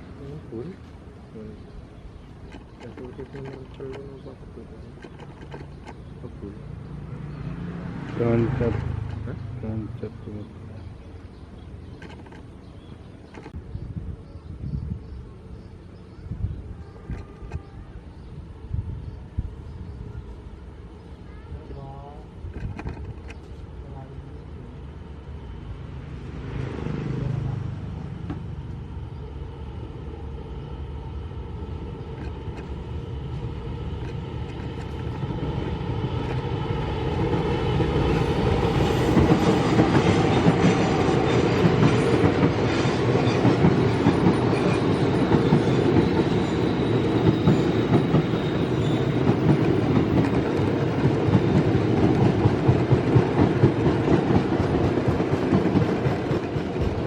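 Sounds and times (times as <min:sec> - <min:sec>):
train wheels clattering on rails: 0:02.3 - 0:06.5, 0:11.8 - 0:12.6, 0:22.4 - 0:23.6, 0:33.8 - 0:57.0.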